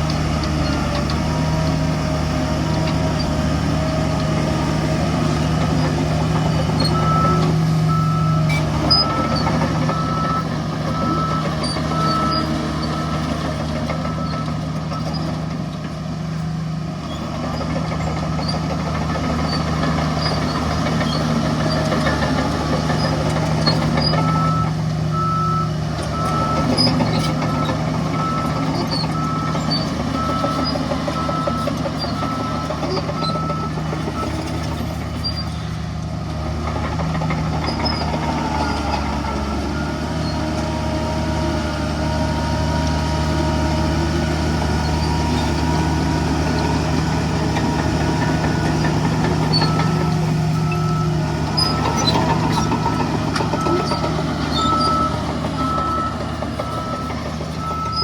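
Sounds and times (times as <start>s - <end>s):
diesel machinery engine: 0.0s - 58.0s
reversing alarm beeping: 6.0s - 15.3s, 24.0s - 34.6s, 37.8s - 41.7s, 46.7s - 58.0s.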